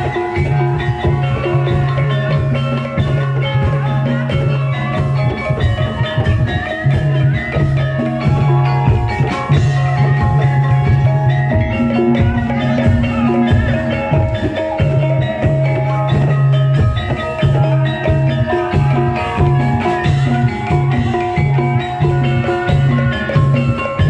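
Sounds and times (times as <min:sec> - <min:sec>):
drums: 0:00.0 - 0:24.0
struck metallophones melody: 0:00.0 - 0:24.0.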